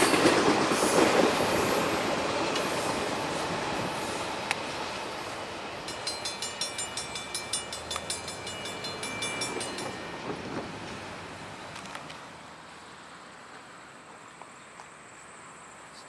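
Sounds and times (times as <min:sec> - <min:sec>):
train rail noise: 0:00.0 - 0:16.0
rapid high ringing ticking: 0:05.1 - 0:10.5.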